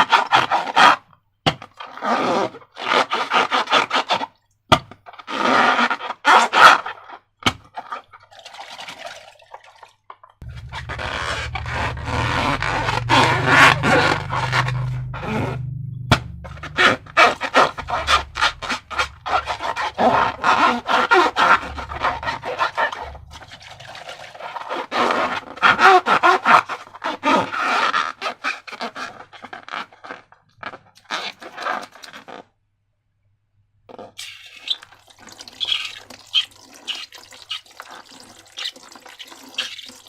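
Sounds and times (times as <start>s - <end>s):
low hum: 10.4s - 24.5s
wet slime squishing: 16.2s - 25.0s.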